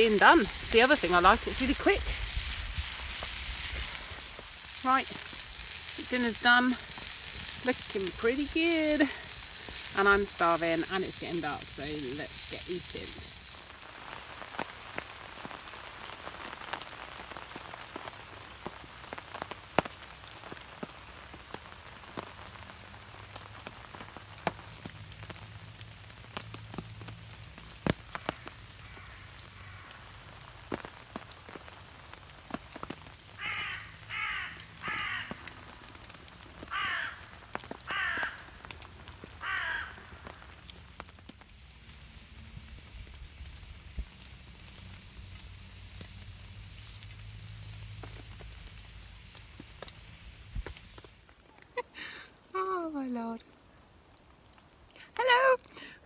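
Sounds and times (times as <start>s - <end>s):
heavy drips falling: 0.0s - 52.2s
rain pattering: 0.0s - 56.0s
crow cawing: 28.1s - 30.3s, 33.4s - 35.8s, 36.6s - 38.7s, 39.4s - 40.5s.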